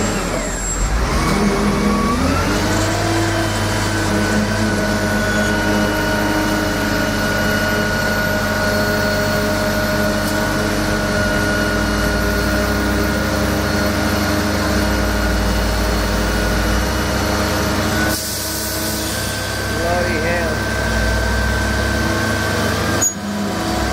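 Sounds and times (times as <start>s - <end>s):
large engine droning: 0.0s - 23.9s.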